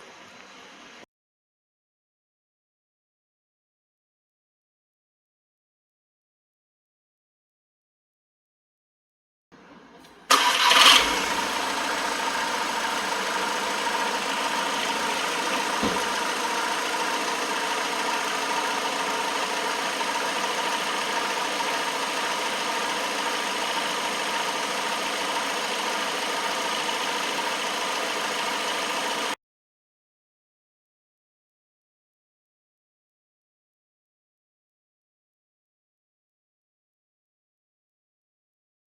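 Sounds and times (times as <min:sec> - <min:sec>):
diesel car engine starting and idling: 0:10.0 - 0:29.4.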